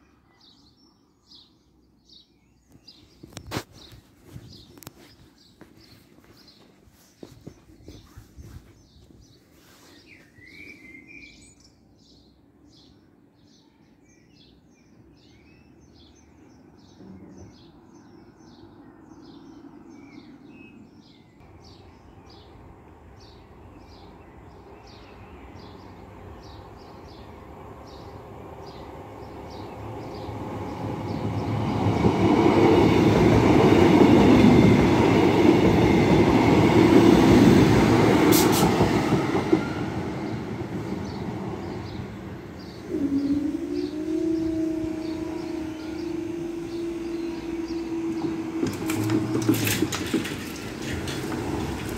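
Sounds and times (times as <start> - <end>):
train wheels on rails: 24.9 - 51.9.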